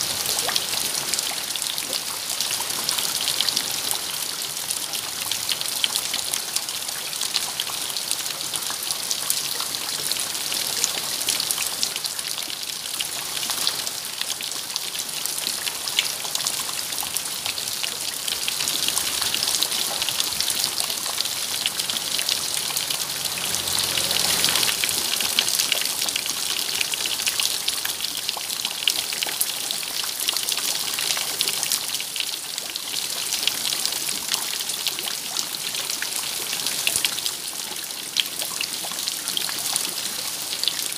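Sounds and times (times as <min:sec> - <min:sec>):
rain pattering: 0:00.0 - 0:40.9.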